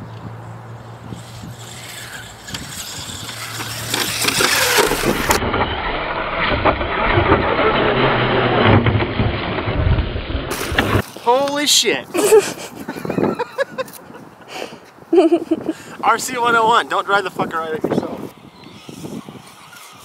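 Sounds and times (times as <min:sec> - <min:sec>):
rc truck motor and tyres on dirt: 0:00.0 - 0:11.6, 0:16.3 - 0:20.0.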